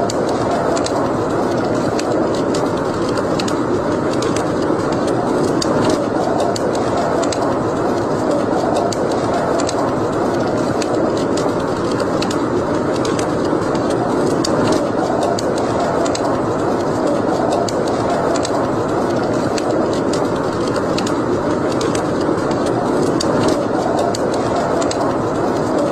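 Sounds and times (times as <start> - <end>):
fire crackling and popping: 0.0 - 25.9
fire rushing noise: 0.0 - 25.9.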